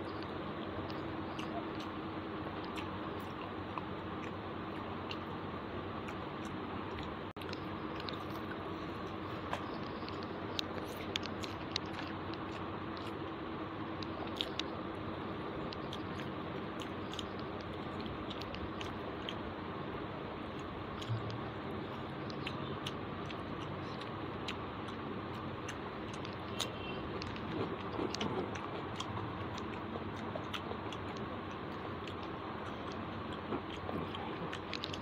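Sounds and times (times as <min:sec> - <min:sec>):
person chewing food: 0:00.0 - 0:35.0
wet mouth clicks and smacks: 0:20.5 - 0:35.0.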